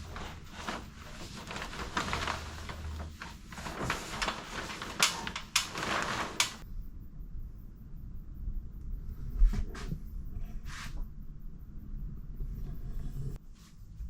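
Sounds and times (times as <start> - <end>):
scraping and rustling: 0.0 - 6.6.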